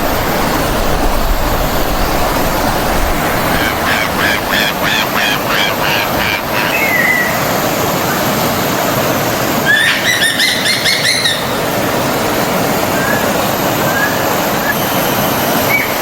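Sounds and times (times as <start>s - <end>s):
forest stream rushing: 0.0s - 16.0s
bird trilling: 3.4s - 7.5s, 9.6s - 11.7s
birds singing: 3.4s - 7.5s, 9.6s - 11.7s.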